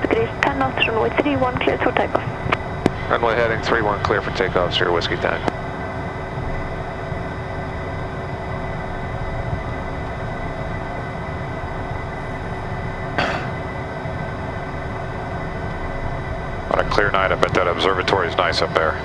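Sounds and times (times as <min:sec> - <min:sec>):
jet engine cabin rumble and whine: 0:00.0 - 0:19.0.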